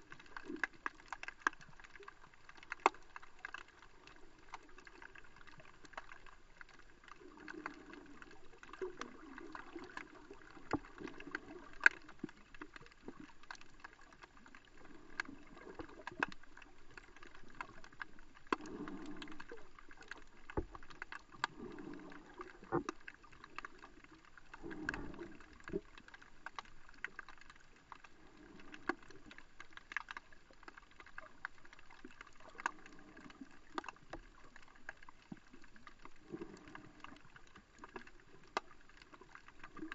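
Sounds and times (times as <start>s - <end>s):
muffled underwater sloshing: 0.0s - 39.9s
sharp underwater clicks: 0.0s - 39.9s.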